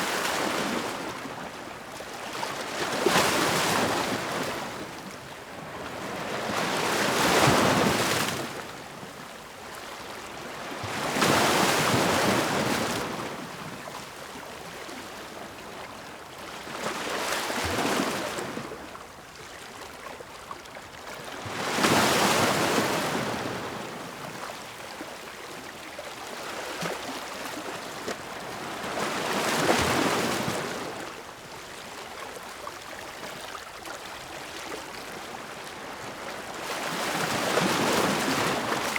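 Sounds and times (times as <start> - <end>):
ocean waves breaking on shore: 35.4 - 38.9.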